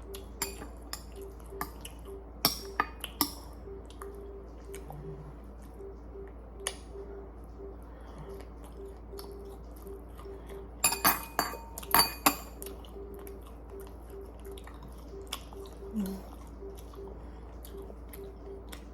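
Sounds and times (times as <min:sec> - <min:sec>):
utensils clinking against dishes: 0:00.4 - 0:03.6, 0:10.8 - 0:12.7.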